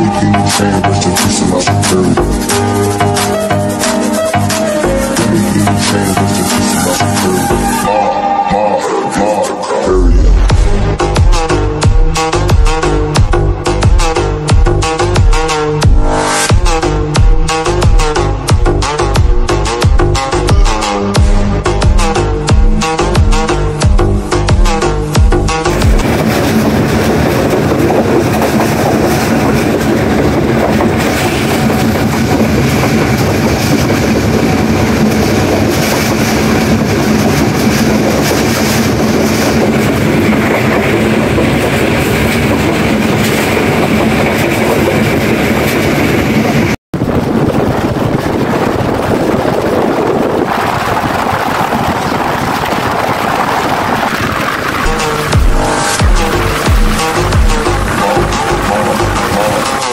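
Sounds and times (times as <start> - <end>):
train wheels rushing on track: 25.8 - 59.9.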